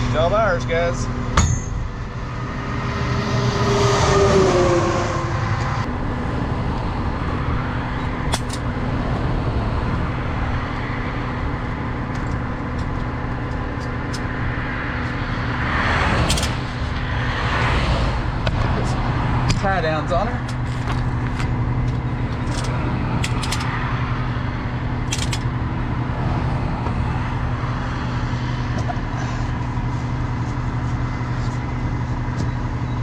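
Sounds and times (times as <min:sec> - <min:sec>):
traffic passing: 0:00.0 - 0:33.0
truck engine idling: 0:18.1 - 0:33.0.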